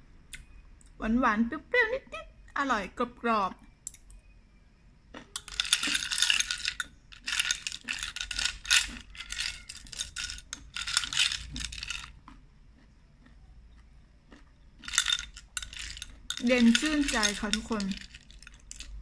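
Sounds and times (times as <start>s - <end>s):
person chewing crunchy food: 6.8s - 17.0s.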